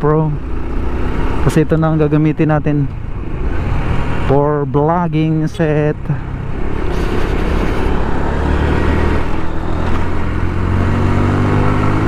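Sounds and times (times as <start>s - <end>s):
motorcycle engine running: 0.0s - 4.4s
wind and road noise: 0.0s - 12.0s.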